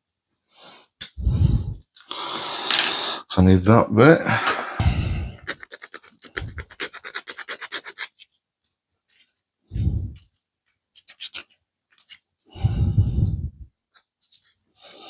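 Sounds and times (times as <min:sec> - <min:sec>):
scraping plastic part: 0:10.1 - 0:12.3, 0:14.0 - 0:14.6.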